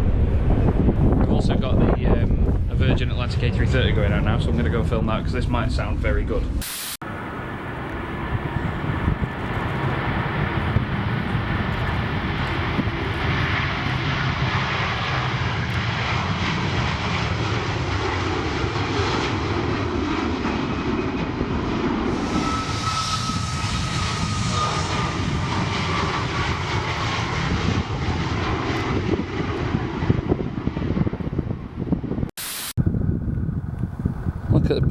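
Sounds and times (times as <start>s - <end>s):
jet engines rumbling: 0.0s - 34.9s
thin engine whine: 7.0s - 32.2s.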